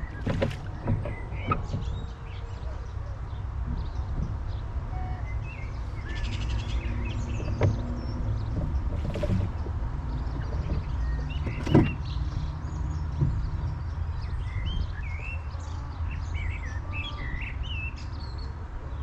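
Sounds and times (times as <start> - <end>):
sharp knocks: 0.0 - 2.0, 7.2 - 12.2
birds chirping: 0.0 - 18.6
wind rumble on microphone: 0.0 - 19.0.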